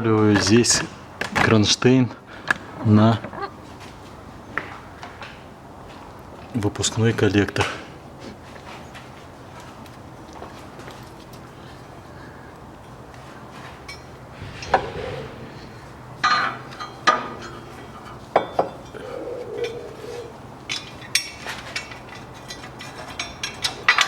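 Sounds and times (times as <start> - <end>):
metal tools clinking and knocking: 20.7 - 24.0.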